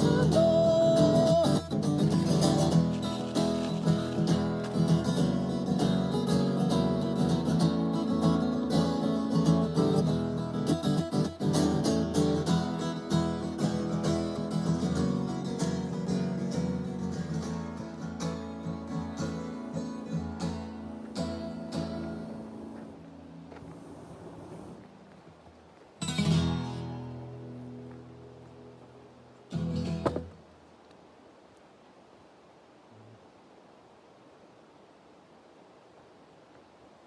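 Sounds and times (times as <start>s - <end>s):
acoustic guitar strumming chords: 0.0s - 23.8s, 26.0s - 30.4s.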